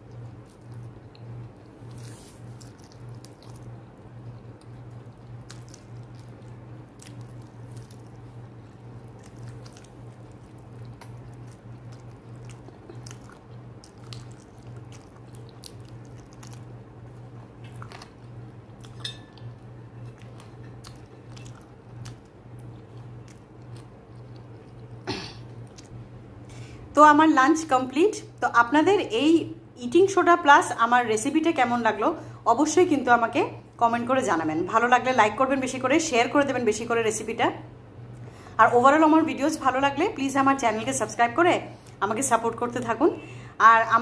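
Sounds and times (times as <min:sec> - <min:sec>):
wet chewing with mouth clicks: 0:00.0 - 0:26.0.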